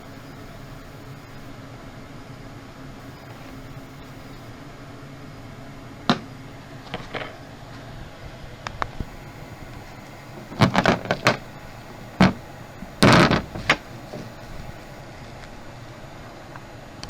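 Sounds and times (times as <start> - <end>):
hard parts knocking: 10.4 - 11.4, 12.2 - 14.4.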